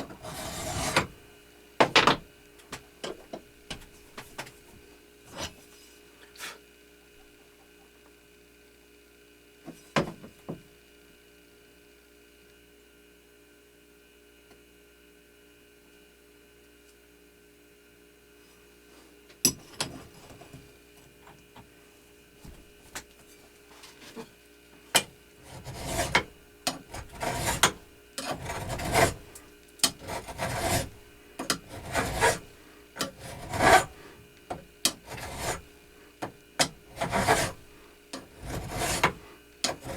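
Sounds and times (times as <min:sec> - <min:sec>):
hand file scraping on metal: 0:00.1 - 0:01.2, 0:25.4 - 0:35.7, 0:36.6 - 0:39.9.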